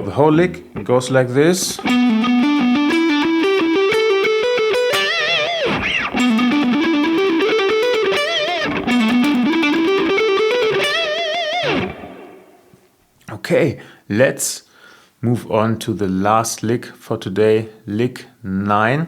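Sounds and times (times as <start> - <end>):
overdriven electric guitar lick: 1.8 - 12.8.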